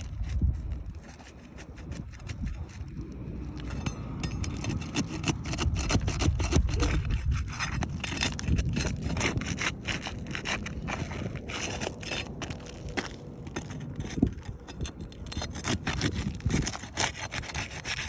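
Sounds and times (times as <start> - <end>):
roof shingles scraping: 4.7 - 18.0.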